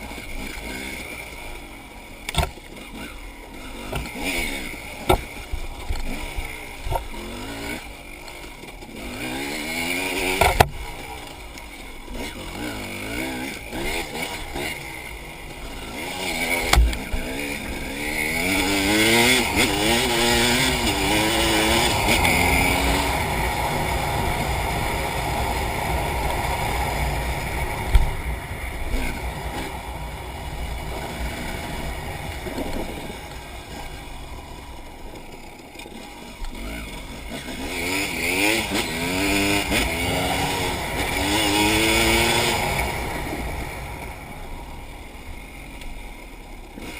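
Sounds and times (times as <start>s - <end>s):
motorcycle engine revving: 0.0s - 46.9s
sharp knocks: 16.7s - 17.0s.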